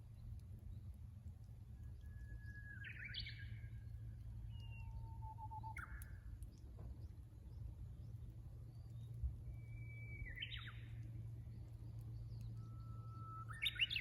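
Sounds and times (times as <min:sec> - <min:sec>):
bush warbler singing: 0:09.8 - 0:11.0, 0:11.6 - 0:14.0.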